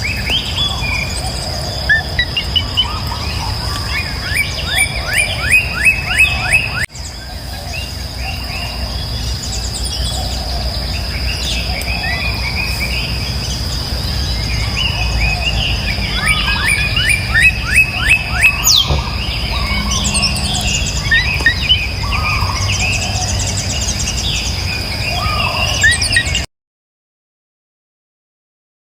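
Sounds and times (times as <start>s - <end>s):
high-pitched whine: 0.0s - 26.4s
small birds chirping: 0.0s - 26.5s
low rumble: 7.0s - 25.1s.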